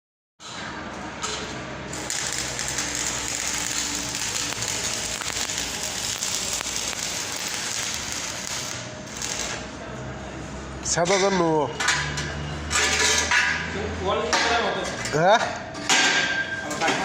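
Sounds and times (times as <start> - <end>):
arc welding crackling hiss: 1.9 - 9.7.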